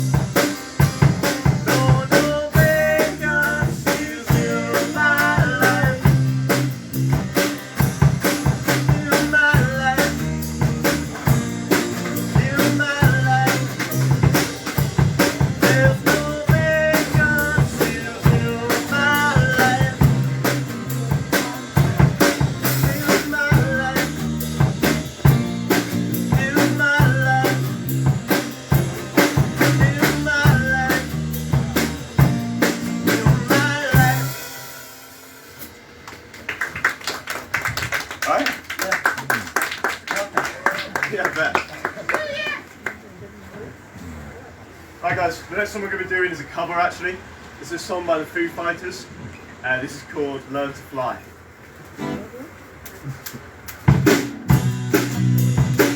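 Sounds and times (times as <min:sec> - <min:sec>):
drum kit beat: 0:00.0 - 0:36.0, 0:52.0 - 0:55.9
live band playing: 0:00.0 - 0:37.9, 0:51.9 - 0:55.9.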